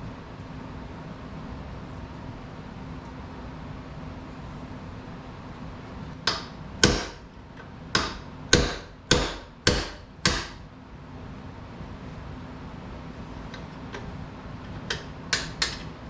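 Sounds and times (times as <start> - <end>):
hammer striking metal part: 6.3 - 7.2, 8.0 - 10.6, 14.8 - 16.0.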